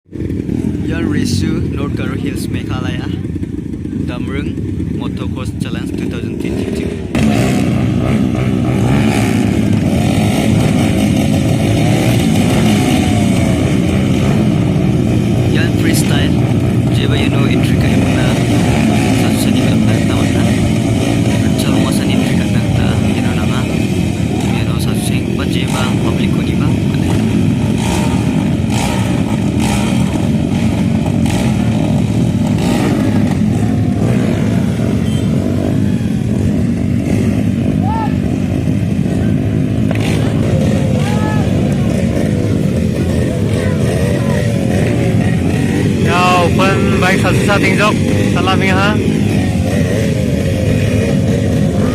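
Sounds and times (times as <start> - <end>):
dirt bike engines revving: 0.0 - 51.9.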